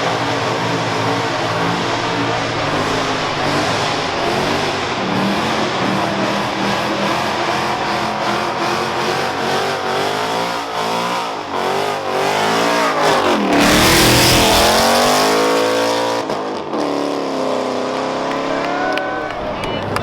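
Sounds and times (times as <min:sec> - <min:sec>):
rush of noise: 0:00.0 - 0:15.9
car engine revving: 0:00.0 - 0:20.0.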